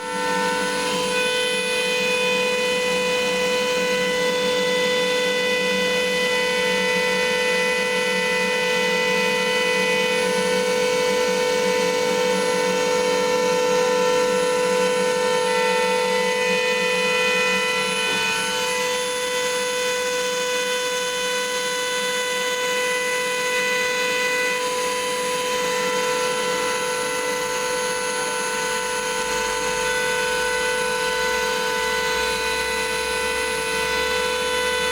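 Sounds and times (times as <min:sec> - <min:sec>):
machine whine: 0:00.0 - 0:34.9.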